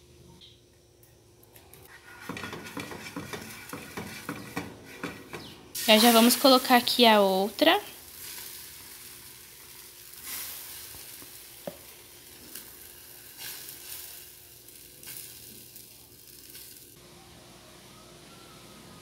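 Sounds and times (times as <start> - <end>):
spoon scraping pan: 1.9 - 6.6
batter sizzling in frying pan: 5.7 - 17.0.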